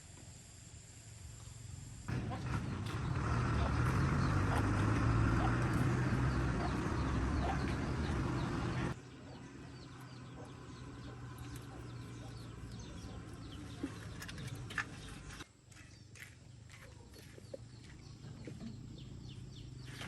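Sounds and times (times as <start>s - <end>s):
engine humming: 1.6s - 15.4s
birds chirping: 2.1s - 20.0s.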